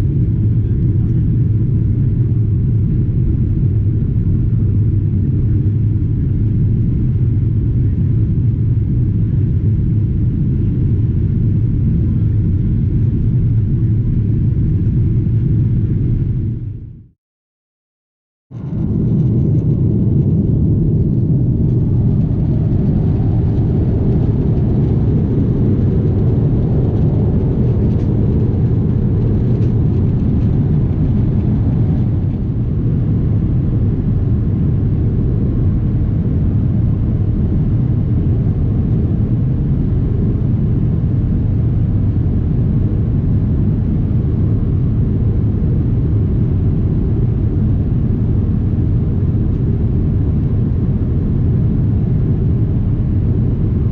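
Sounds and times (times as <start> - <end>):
airplane cabin rumble in flight: 0.0 - 17.2, 18.5 - 53.9.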